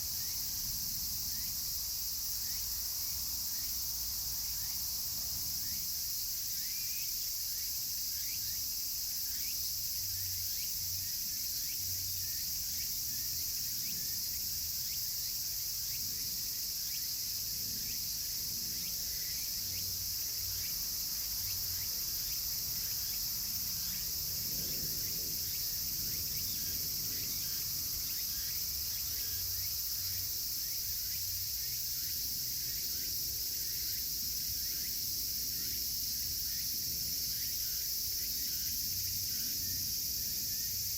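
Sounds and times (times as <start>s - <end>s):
cicadas singing: 0.0s - 40.9s.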